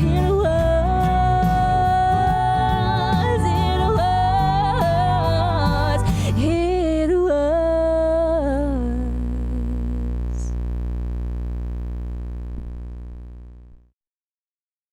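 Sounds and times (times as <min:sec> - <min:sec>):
woman singing wordless vocal: 0:00.0 - 0:10.6.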